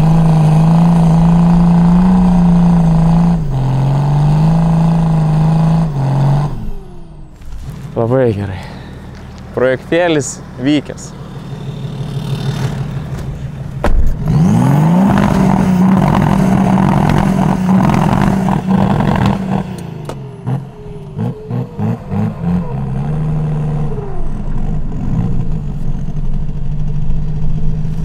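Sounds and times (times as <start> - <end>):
diesel engine revving: 0.0 - 28.0
car door shutting: 12.4 - 14.3.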